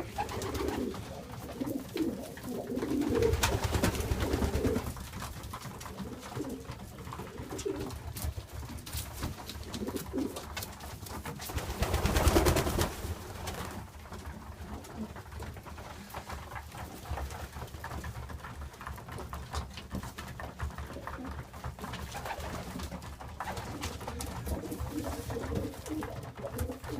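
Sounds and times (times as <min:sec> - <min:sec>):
pigeons cooing: 0:00.0 - 0:05.0, 0:05.9 - 0:08.0, 0:23.4 - 0:26.9.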